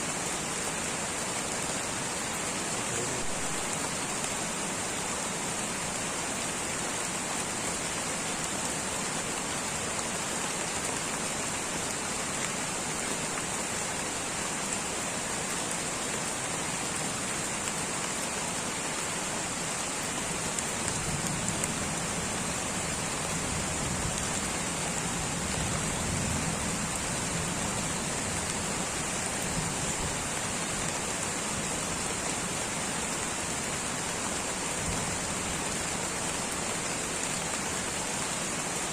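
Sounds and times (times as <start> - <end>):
light rain patter: 0.0 - 38.9.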